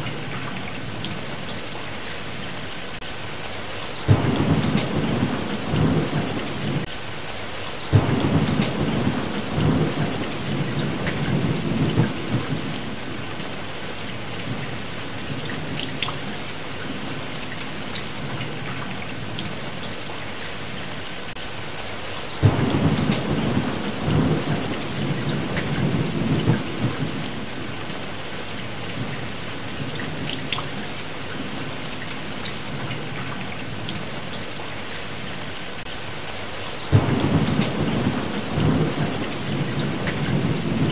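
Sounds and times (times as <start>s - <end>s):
heavy rain: 0.0s - 40.9s
thunder rolling: 36.9s - 40.9s.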